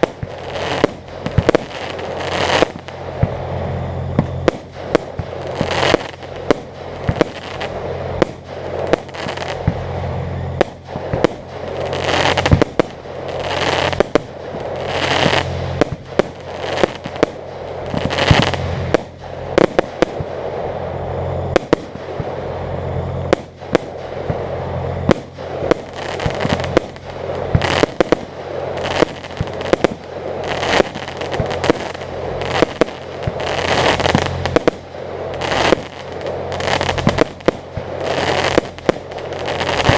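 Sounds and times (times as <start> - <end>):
firework shells bursting: 0.0 - 3.4, 10.6 - 20.5, 23.3 - 39.9
firework crackling: 0.0 - 39.9
low hum: 0.0 - 39.9.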